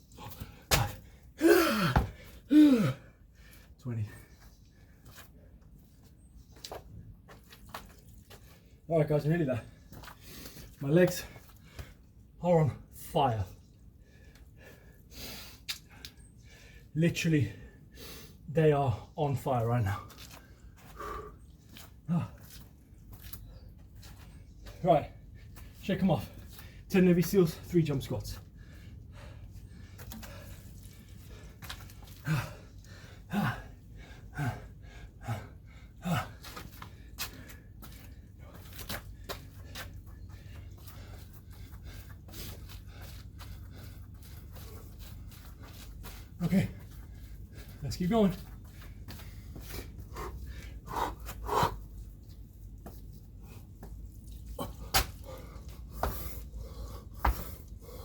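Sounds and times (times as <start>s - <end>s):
man breathing hard: 0.4s - 3.8s, 20.5s - 22.5s, 28.4s - 47.8s, 48.6s - 52.0s, 54.6s - 58.0s.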